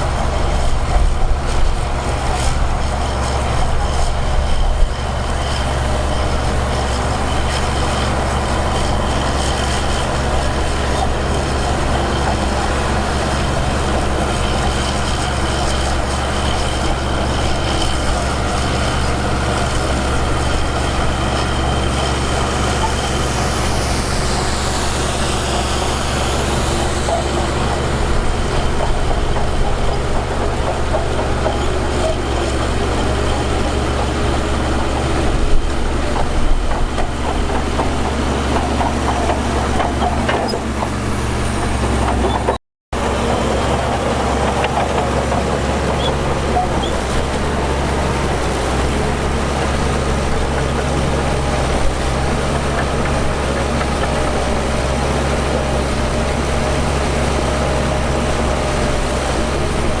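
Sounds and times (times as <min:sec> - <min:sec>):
heavy diesel machinery droning: 0:00.0 - 1:00.0.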